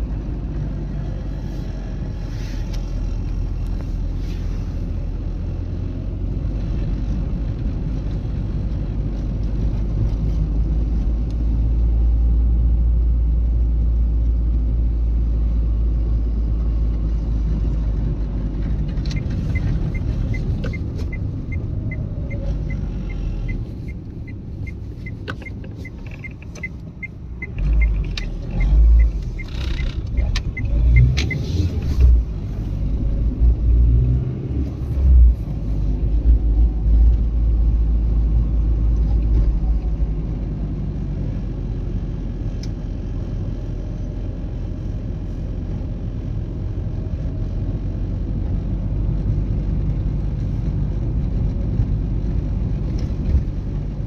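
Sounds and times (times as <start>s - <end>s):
car engine and road rumble: 0.0s - 54.0s
light regular ticking: 19.0s - 31.8s.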